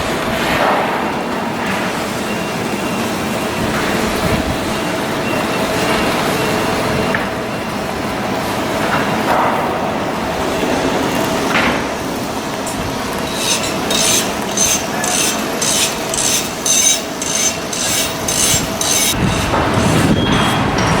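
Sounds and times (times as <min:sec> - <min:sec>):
shipyard machinery noise: 0:00.0 - 0:21.0
scraping strokes on metal: 0:12.6 - 0:20.8.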